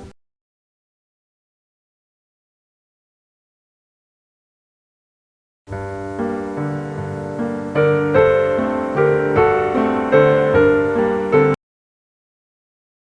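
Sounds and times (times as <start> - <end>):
piano music: 5.7 - 11.6.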